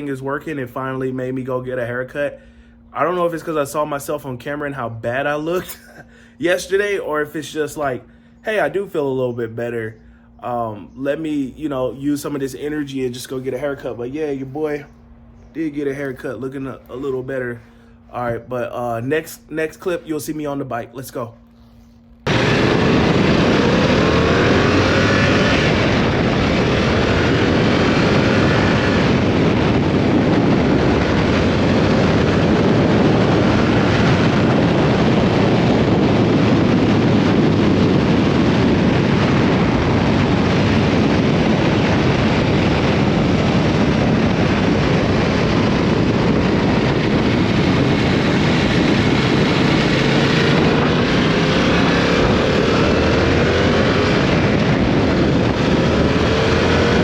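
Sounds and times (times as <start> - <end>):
wind noise on microphone: 0.0 - 9.8, 21.5 - 57.0
motorcycle engine accelerating: 22.2 - 57.0.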